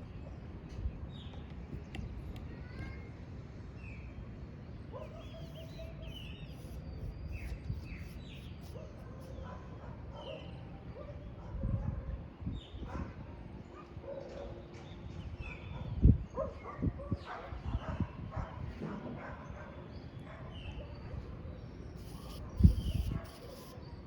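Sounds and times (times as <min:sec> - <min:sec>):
birds chirping: 0:05.0 - 0:10.6, 0:21.7 - 0:23.9
wind rumbling on microphone: 0:11.4 - 0:14.1, 0:15.1 - 0:19.3, 0:22.0 - 0:23.5.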